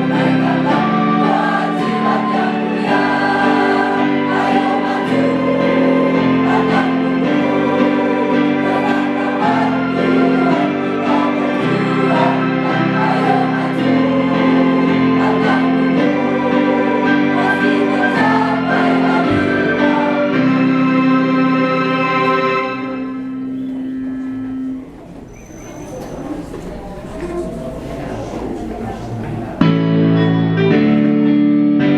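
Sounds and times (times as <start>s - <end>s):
choir singing: 0.0s - 24.8s, 26.0s - 29.9s
instrumental accompaniment: 0.0s - 25.3s.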